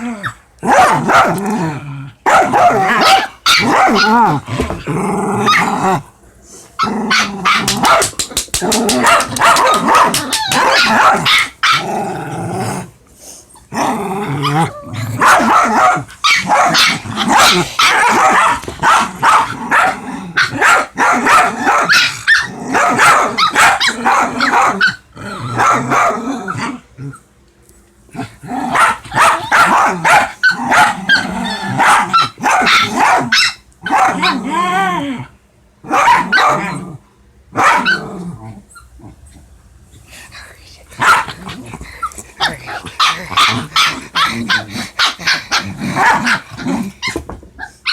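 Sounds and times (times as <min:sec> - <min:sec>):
dogs growling: 0:00.0 - 0:27.3, 0:28.1 - 0:33.3, 0:37.8 - 0:40.2, 0:40.9 - 0:47.8
dogs barking: 0:00.6 - 0:01.4, 0:02.2 - 0:04.4, 0:06.8 - 0:11.9, 0:15.2 - 0:26.7, 0:28.6 - 0:34.5, 0:35.8 - 0:36.8, 0:37.6 - 0:38.1, 0:41.0 - 0:41.6, 0:42.4 - 0:47.9.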